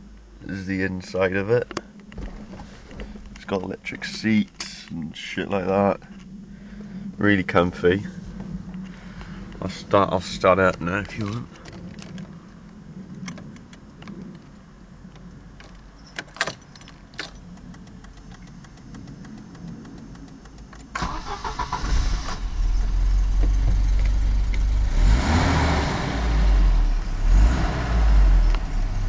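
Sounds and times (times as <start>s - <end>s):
car engine running: 0.0s - 29.0s
sharp clicks: 8.7s - 21.9s
starter cranking engine: 16.2s - 25.0s.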